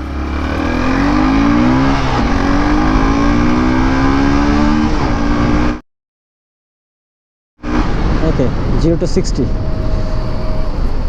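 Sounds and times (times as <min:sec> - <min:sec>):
motorcycle engine accelerating hard: 0:00.0 - 0:05.8, 0:07.6 - 0:08.8.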